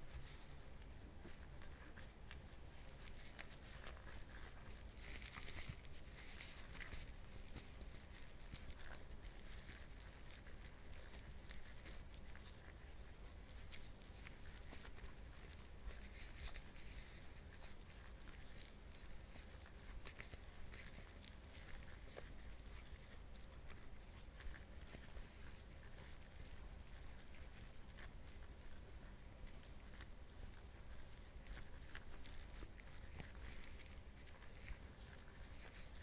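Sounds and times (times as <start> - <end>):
gloves rubbing: 0.0 - 36.0
sticky squelching of kneaded butter: 0.0 - 36.0.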